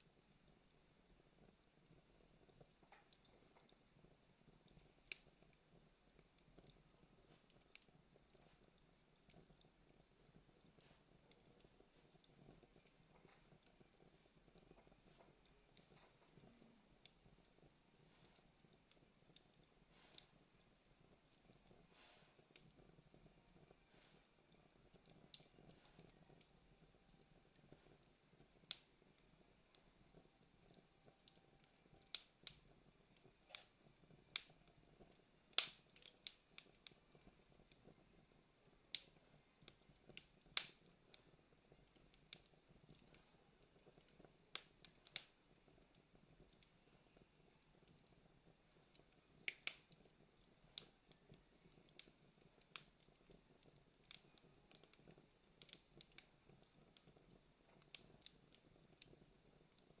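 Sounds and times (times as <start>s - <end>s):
campfire crackling: 0.0s - 60.0s
faint low hiss: 0.0s - 60.0s
sharp pops of fire: 35.2s - 37.0s, 38.9s - 41.3s.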